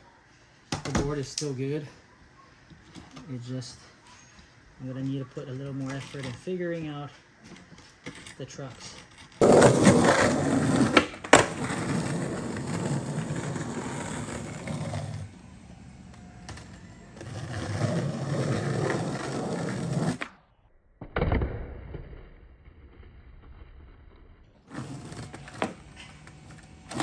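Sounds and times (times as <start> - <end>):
skateboard wheels rolling: 7.5 - 20.4, 22.1 - 27.0
skateboard clacks: 9.4 - 20.3.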